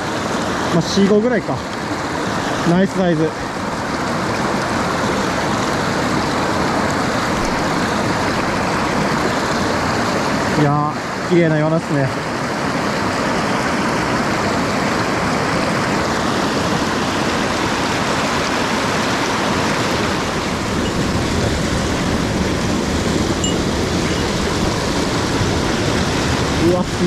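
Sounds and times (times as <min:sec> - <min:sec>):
stream water rushing: 0:00.0 - 0:27.0.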